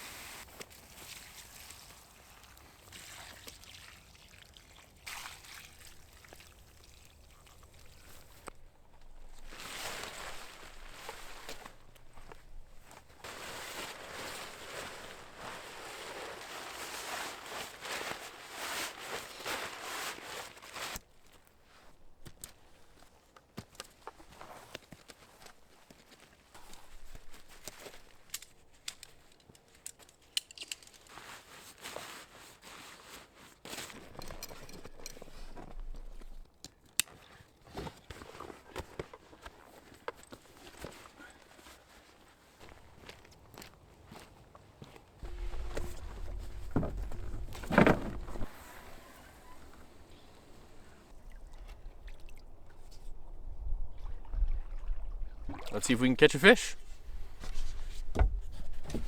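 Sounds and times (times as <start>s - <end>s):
rustling: 8.0s - 21.0s, 45.2s - 53.4s
footsteps: 45.2s - 51.8s.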